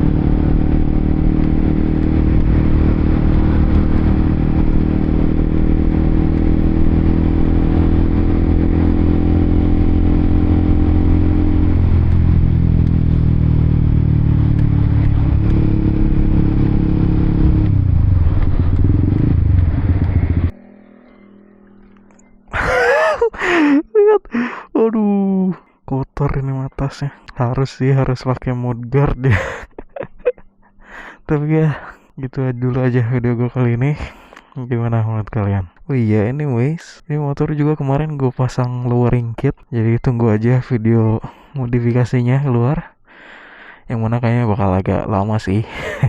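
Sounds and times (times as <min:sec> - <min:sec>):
motorcycle engine running: 0:00.0 - 0:22.6.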